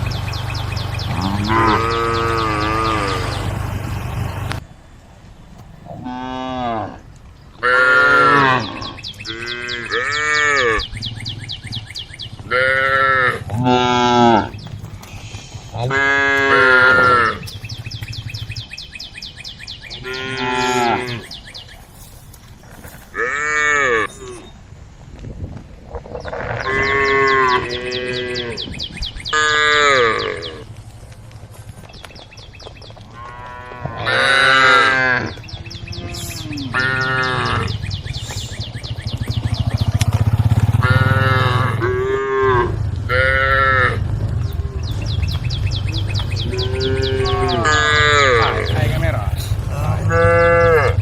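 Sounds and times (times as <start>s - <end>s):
cows mooing: 1.0s - 4.6s, 5.9s - 7.0s, 7.6s - 10.9s, 12.4s - 17.8s, 20.0s - 21.3s, 23.1s - 24.4s, 26.2s - 30.7s, 33.1s - 38.6s, 39.2s - 51.0s.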